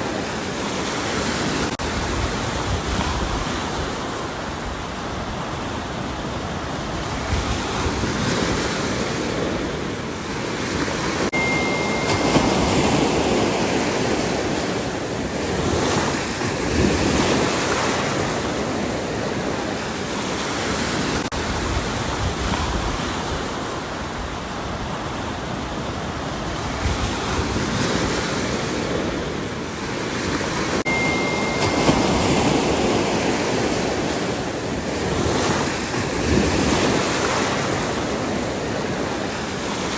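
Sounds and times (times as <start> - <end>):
ocean waves breaking on shore: 0.0 - 39.9
thin high tone: 11.3 - 14.8, 30.9 - 34.4.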